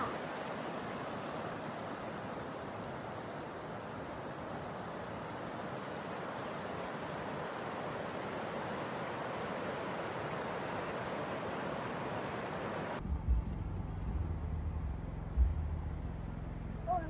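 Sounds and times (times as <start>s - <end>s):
steady rushing noise: 0.0s - 13.6s.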